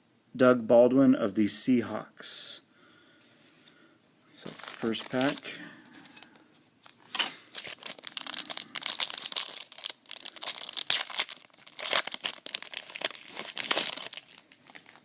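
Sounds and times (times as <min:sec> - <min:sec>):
wrapper tearing and crinkling: 0:04.4 - 0:15.0.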